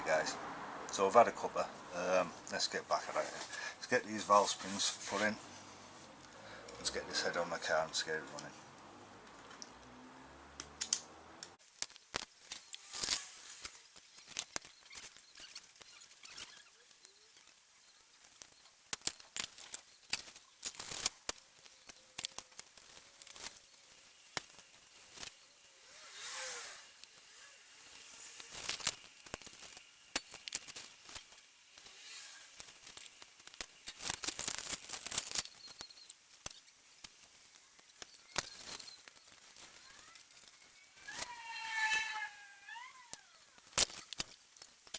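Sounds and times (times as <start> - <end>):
rustling scrapes: 12.0 - 44.9
metallic clicks of tools and parts: 43.2 - 44.9.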